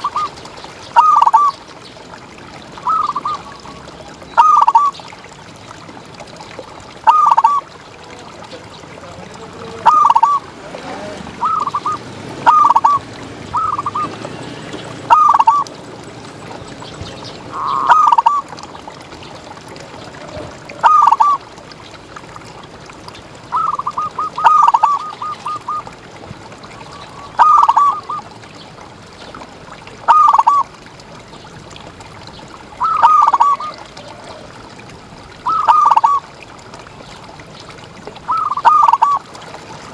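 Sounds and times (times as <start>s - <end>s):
dove cooing: 9.6s - 18.6s, 19.8s - 21.4s, 23.5s - 25.9s, 27.0s - 28.3s, 30.1s - 30.6s, 32.8s - 34.6s, 35.5s - 36.2s, 38.3s - 39.2s.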